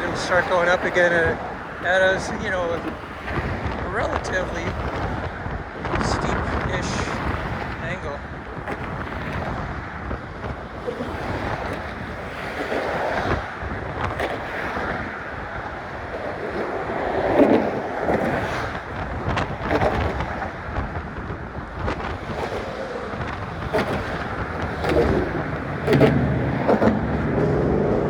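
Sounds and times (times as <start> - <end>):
muffled wind on microphone: 0.0 - 28.0.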